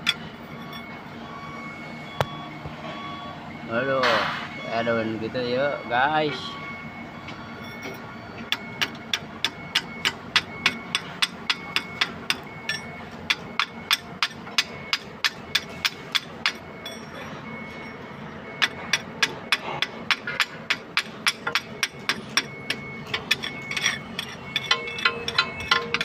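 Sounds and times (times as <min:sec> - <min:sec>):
hammer striking metal: 0:18.6 - 0:26.0.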